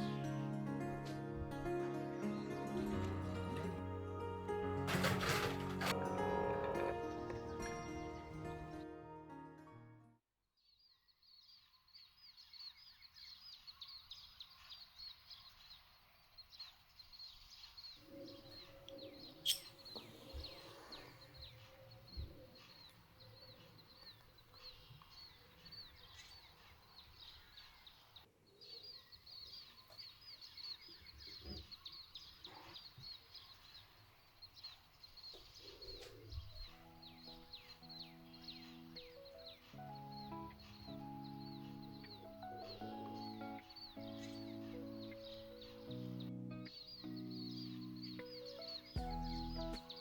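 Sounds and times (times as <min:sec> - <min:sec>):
small birds chirping: 0:10.7 - 0:50.0.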